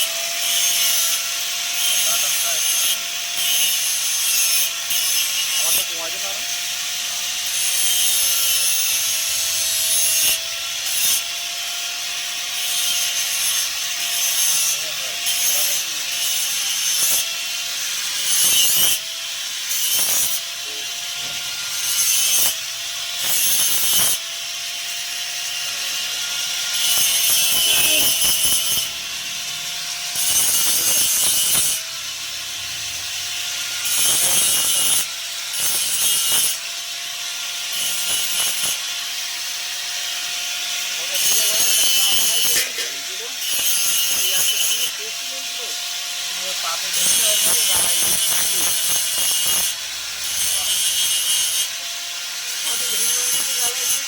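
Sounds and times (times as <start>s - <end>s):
tool scraping material: 12.6s - 31.9s, 32.9s - 37.0s, 37.6s - 54.0s.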